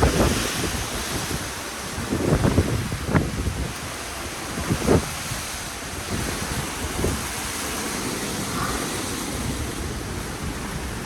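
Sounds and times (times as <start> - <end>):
strong wind buffeting microphone: 0.0 - 11.0.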